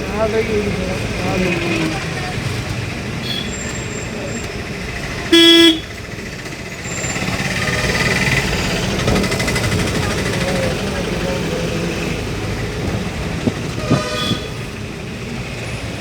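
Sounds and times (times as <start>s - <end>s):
vehicle road and engine noise: 0.0s - 16.0s
vehicle horn blast: 5.3s - 6.0s, 13.7s - 14.7s.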